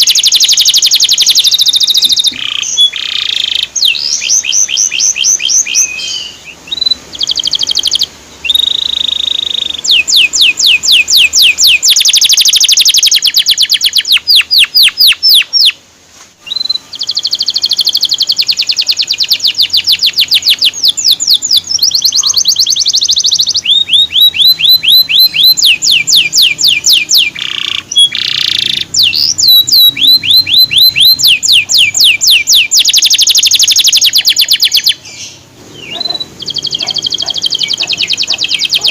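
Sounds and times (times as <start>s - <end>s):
canary singing trills: 0.0s - 15.8s, 16.4s - 38.9s.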